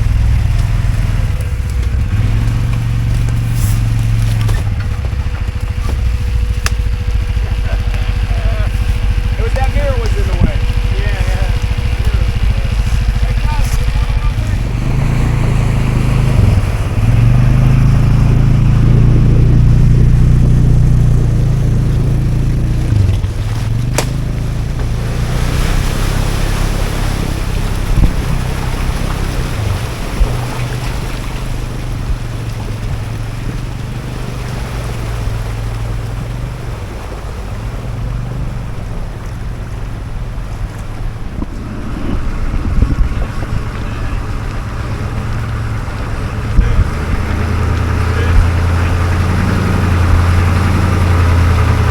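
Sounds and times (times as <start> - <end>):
vehicle engine under load: 0.0 - 51.9
wind on microphone: 10.3 - 23.8, 26.1 - 34.0, 34.9 - 51.9
sharp knocks: 22.9 - 25.0.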